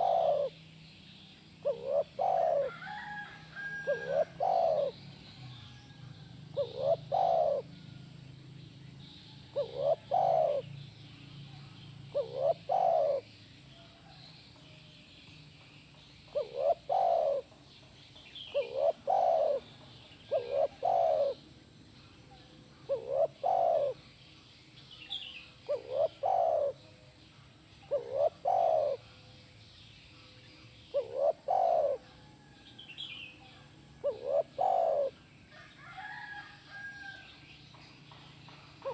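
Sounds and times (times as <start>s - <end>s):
dove cooing: 0.0s - 0.6s, 1.5s - 5.9s, 6.5s - 7.8s, 9.4s - 10.7s, 11.6s - 13.4s, 16.3s - 17.6s, 18.5s - 21.4s, 22.0s - 24.0s, 25.2s - 26.8s, 27.8s - 29.1s, 30.8s - 32.6s, 33.3s - 37.2s.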